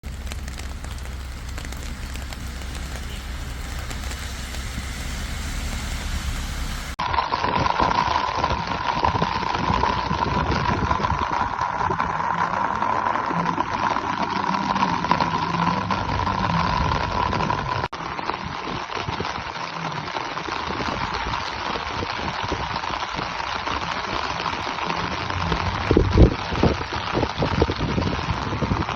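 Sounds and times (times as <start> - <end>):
low thumps: 0.0 - 7.0
rain pattering: 0.0 - 28.9.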